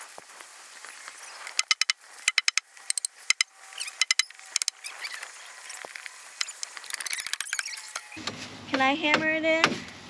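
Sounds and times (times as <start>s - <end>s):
hammer striking nails: 1.6s - 4.8s.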